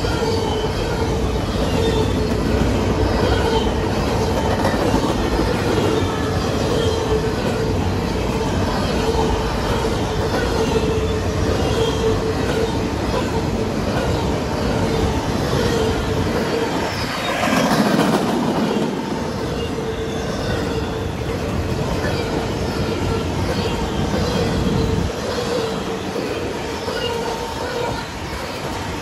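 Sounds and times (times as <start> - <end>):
train wheels on rail: 0.0 - 29.0.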